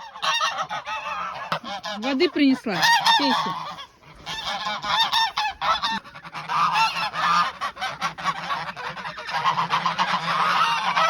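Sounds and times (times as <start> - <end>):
geese honking: 0.0 - 11.0.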